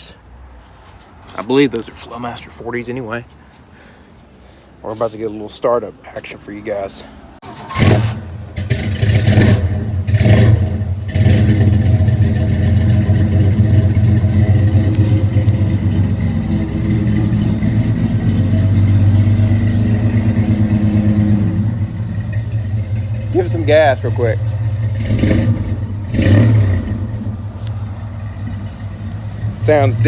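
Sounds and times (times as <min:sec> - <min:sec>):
truck engine revving and idling: 0:07.4 - 0:30.0.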